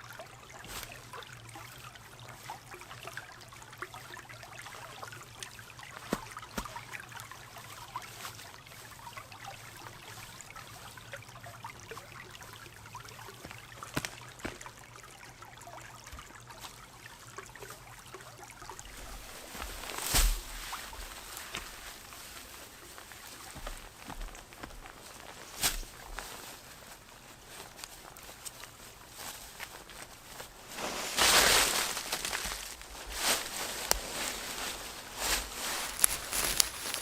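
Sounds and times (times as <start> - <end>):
water trickling: 0.0 - 30.7
small ticks: 35.7 - 37.0.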